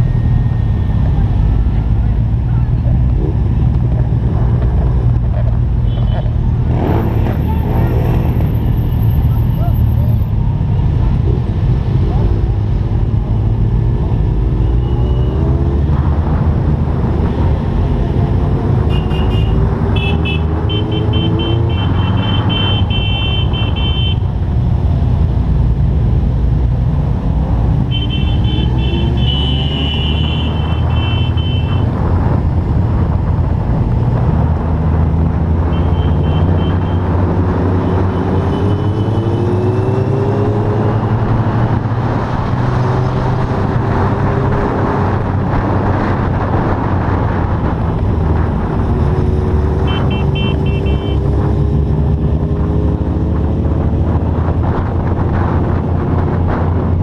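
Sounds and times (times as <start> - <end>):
wind and road rumble: 0.0 - 57.0.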